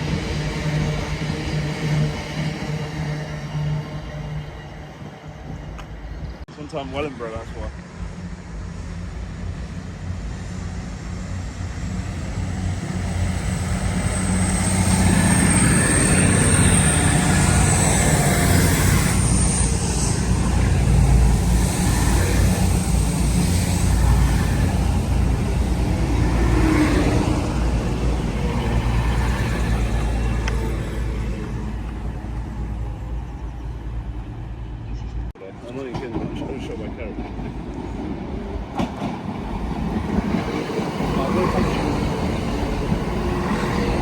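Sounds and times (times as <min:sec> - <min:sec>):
train rumbling: 0:00.0 - 0:44.0.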